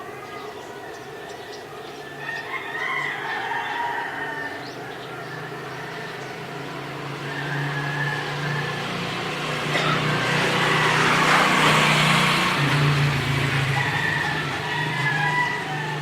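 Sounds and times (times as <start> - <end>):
rooster crowing: 0.2 - 12.5, 13.3 - 16.0
vehicle engine approaching: 4.6 - 16.0.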